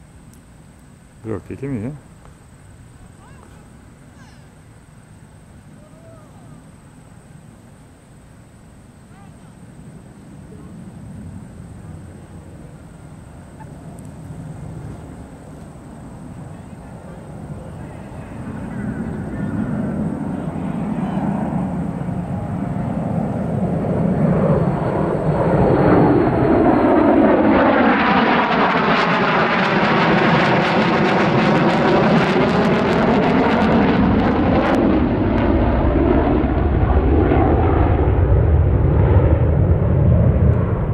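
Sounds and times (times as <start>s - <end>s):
jet engines passing overhead: 0.0s - 40.9s.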